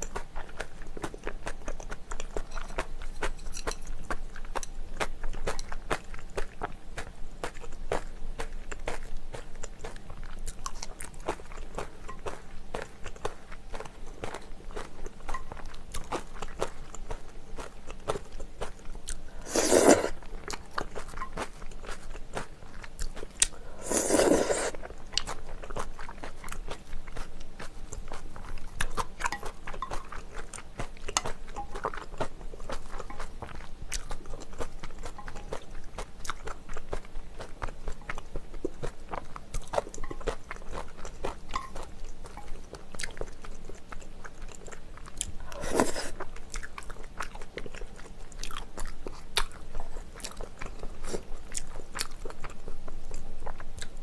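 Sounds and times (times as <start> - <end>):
chewing with mouth clicks: 0.0 - 54.0
loud slurps: 19.4 - 20.2, 23.8 - 24.8, 45.5 - 46.2.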